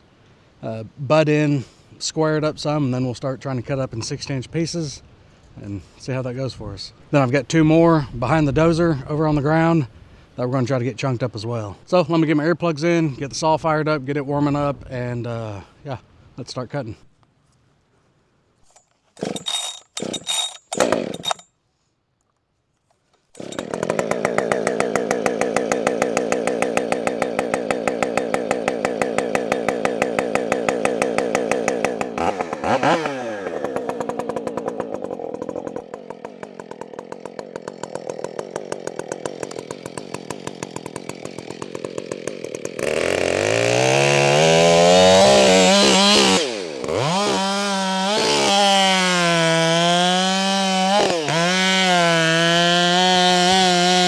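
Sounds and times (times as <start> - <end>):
chainsaw idling and revving: 19.2 - 21.5, 23.3 - 54.0.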